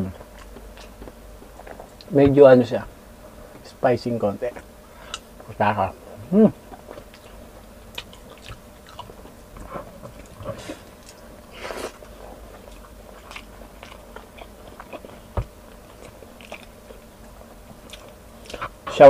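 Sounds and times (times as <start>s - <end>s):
wet chewing: 0.2s - 2.1s, 6.7s - 18.7s.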